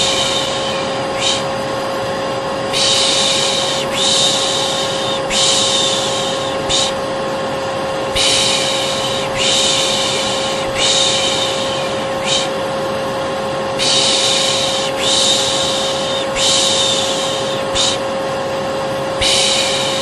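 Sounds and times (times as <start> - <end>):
person shushing: 0.0 - 1.5, 2.7 - 7.0, 8.1 - 12.6, 13.8 - 18.1, 19.2 - 20.0
vacuum cleaner humming: 0.0 - 20.0.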